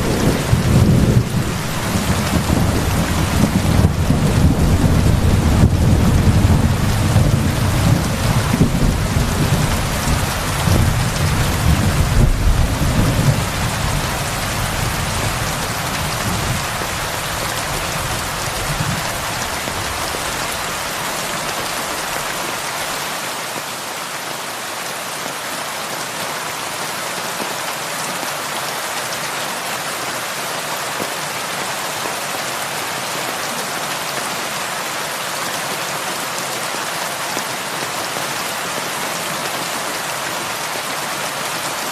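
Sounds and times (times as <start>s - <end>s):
thunder rumbling: 0.0s - 20.5s
heavy rain: 0.0s - 41.9s.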